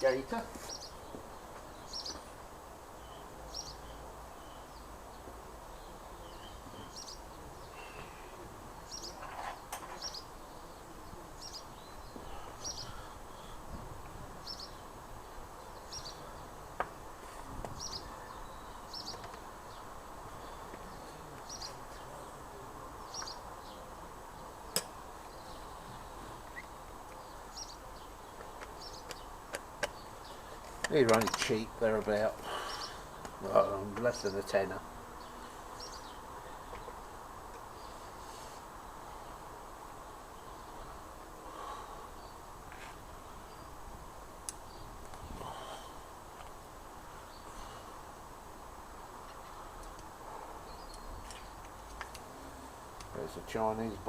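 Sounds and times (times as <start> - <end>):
bird chirping: 0.0 - 2.3, 3.0 - 13.8, 14.4 - 16.6, 17.7 - 38.6, 49.2 - 52.3
outdoor background hiss: 0.0 - 54.0.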